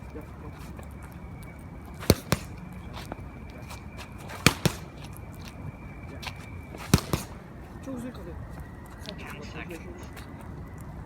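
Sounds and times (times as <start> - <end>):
punches slapping focus mitts: 2.0 - 2.8, 4.2 - 5.3, 6.8 - 7.4.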